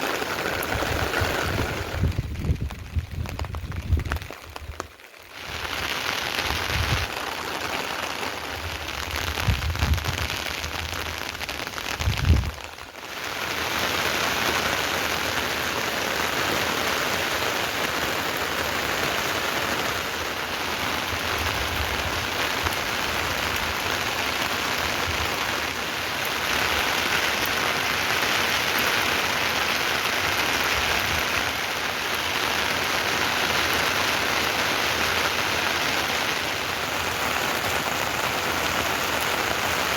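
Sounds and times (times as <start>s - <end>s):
heavy rain hiss: 0.0s - 39.9s.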